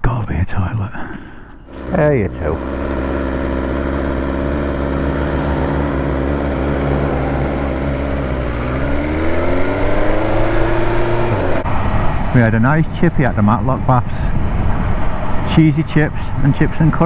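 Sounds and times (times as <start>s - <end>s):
motorcycle engine accelerating: 1.6s - 17.0s.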